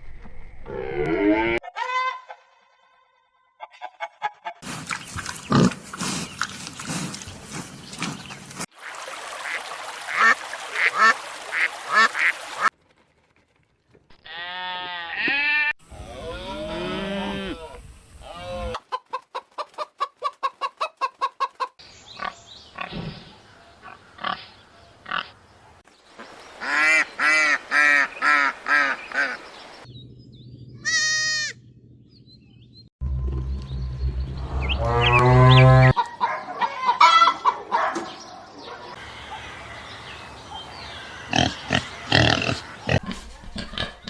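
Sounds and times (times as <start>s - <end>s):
fowl honking: 9.4s - 12.7s
farm animal calls: 14.2s - 18.8s, 30.8s - 31.6s, 38.9s - 44.0s.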